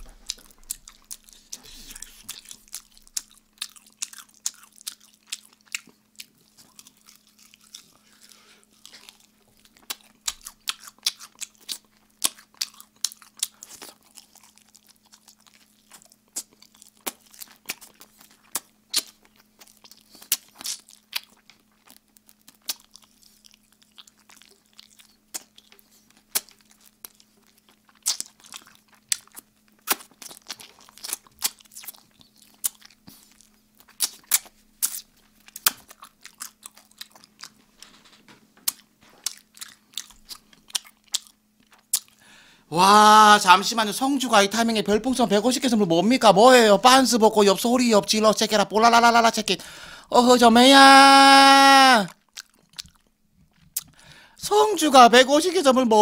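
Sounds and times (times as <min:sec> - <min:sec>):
wet chewing: 0:00.0 - 0:38.0, 0:38.6 - 0:42.2, 0:52.1 - 0:54.2
crunches of crisp chicken: 0:00.0 - 0:42.2.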